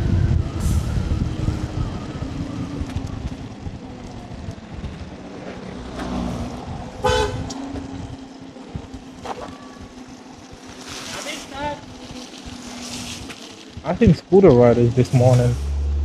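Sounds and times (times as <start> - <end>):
scooter road noise: 0.0 - 16.0
wind on microphone: 0.0 - 16.0
vehicle horn toot: 7.0 - 7.6.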